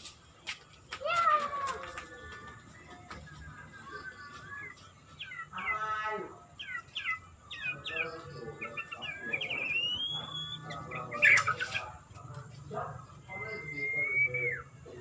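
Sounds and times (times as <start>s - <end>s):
songbird whistling: 2.7s - 5.8s, 6.6s - 11.9s, 13.3s - 15.0s.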